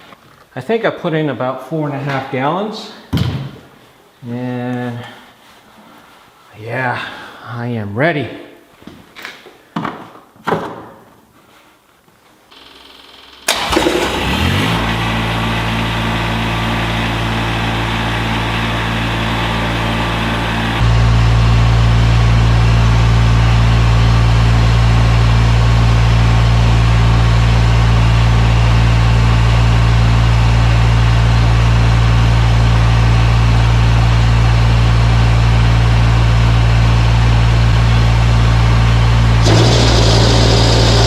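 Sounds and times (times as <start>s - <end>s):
diesel tractor engine idling: 13.5s - 41.0s.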